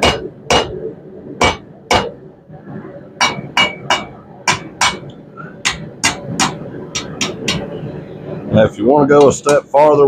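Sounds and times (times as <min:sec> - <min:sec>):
hammer striking steel on anvil: 0:00.0 - 0:00.8, 0:01.4 - 0:02.2, 0:03.2 - 0:07.7.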